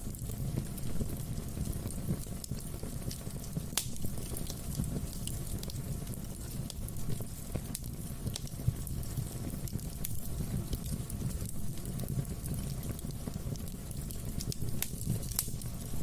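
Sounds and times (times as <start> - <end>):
fire crackling and popping: 0.0 - 16.0
fire rumbling: 0.0 - 16.0.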